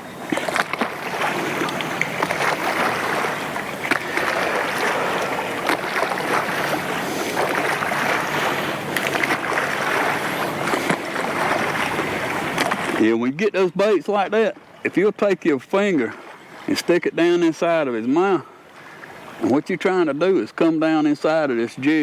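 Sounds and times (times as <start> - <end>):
steady wind: 0.0 - 22.0
water splashing against boat hull: 0.0 - 22.0.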